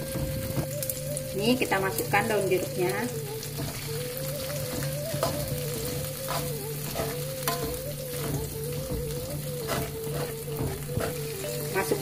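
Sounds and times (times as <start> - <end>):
chili paste sizzling in a wok: 0.0 - 12.0
metal spatula scraping a pan: 4.8 - 12.0.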